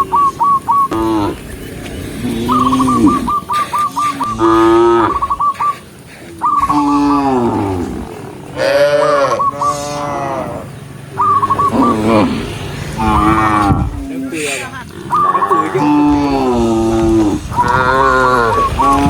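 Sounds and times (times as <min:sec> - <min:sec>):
rapid high chirps: 0:00.0 - 0:01.0, 0:02.3 - 0:07.0, 0:10.8 - 0:12.2, 0:14.8 - 0:15.8
cows mooing: 0:00.0 - 0:19.0.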